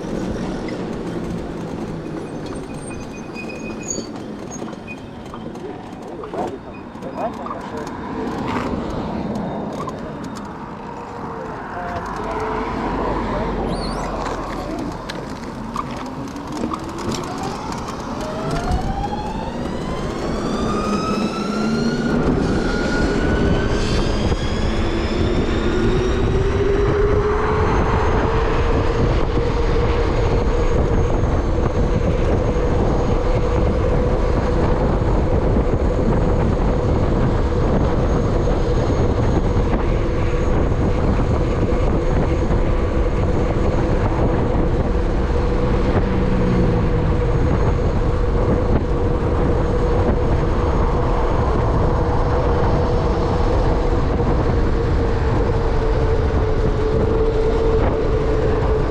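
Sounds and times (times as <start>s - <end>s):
rushing wind noise: 0.0s - 58.9s
electric motorbike motor whining: 13.6s - 25.6s.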